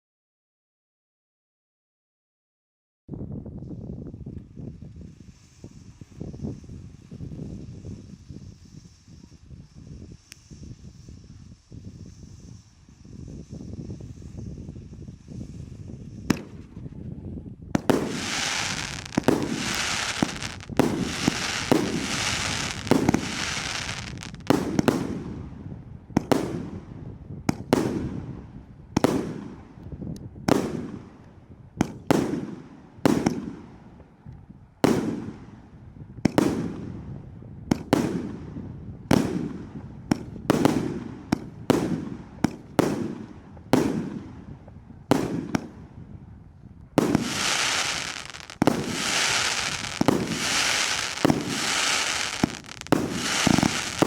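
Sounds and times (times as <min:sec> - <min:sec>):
fireworks crackling and banging: 0:04.6 - 0:17.1, 0:17.7 - 0:29.9, 0:30.5 - 0:34.2, 0:37.7 - 0:45.9, 0:46.8 - 0:54.0
firework shots bursting: 0:17.8 - 0:25.4, 0:39.1 - 0:44.4, 0:45.1 - 0:45.8, 0:47.0 - 0:54.0.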